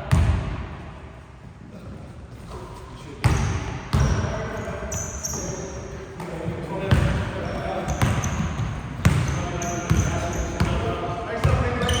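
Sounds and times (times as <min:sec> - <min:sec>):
basketball bouncing on gym floor: 0:00.0 - 0:00.6, 0:03.2 - 0:04.3, 0:06.9 - 0:12.0.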